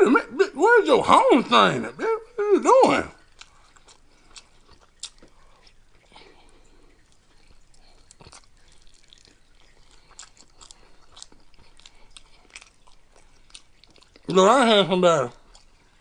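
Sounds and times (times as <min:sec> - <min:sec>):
chewing crunchy snacks: 0:03.2 - 0:14.6, 0:15.3 - 0:16.0.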